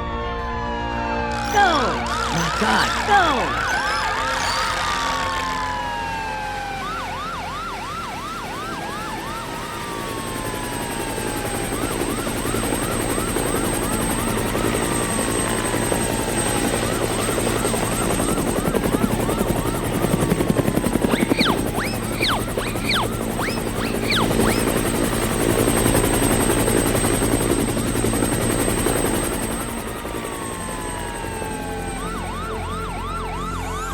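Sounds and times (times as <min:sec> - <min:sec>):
cartoon helicopter rotor chopping: 0:01.2 - 0:33.9
chirping sweeps: 0:01.3 - 0:05.4, 0:16.5 - 0:26.6
slow falling whistles: 0:01.3 - 0:05.4, 0:09.6 - 0:27.4.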